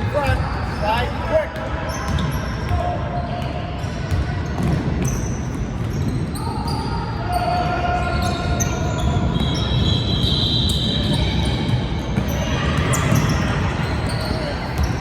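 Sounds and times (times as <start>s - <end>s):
gym hall background noise: 0.0s - 15.0s
sneakers squeaking on hardwood: 1.8s - 15.0s
basketball bouncing: 2.1s - 6.3s.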